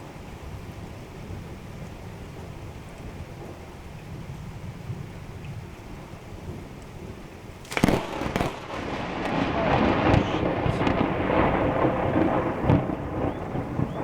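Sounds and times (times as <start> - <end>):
rain falling: 0.0 - 14.0
thunder rumbling: 0.0 - 14.0
lightning crack: 7.6 - 14.0.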